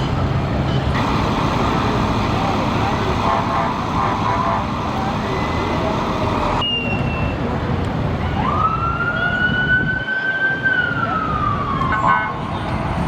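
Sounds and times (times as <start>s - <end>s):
engine and road rumble: 0.0s - 9.0s
emergency siren wailing: 1.0s - 6.6s, 8.3s - 13.0s
harsh siren horn blast: 1.0s - 6.6s.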